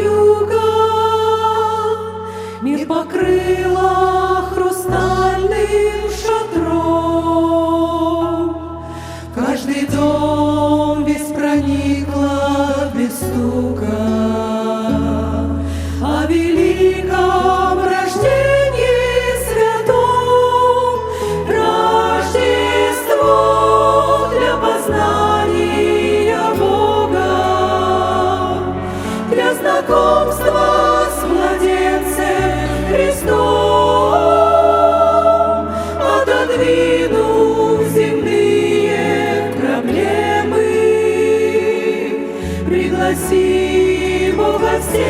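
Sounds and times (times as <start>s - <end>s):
choir singing slow song: 0.0s - 45.0s.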